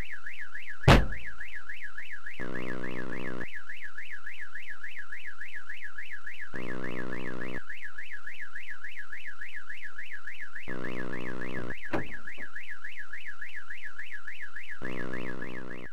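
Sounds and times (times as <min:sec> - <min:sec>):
electronic alarm warbling: 0:00.8 - 0:01.5, 0:02.4 - 0:03.8, 0:06.3 - 0:08.2, 0:10.6 - 0:15.9.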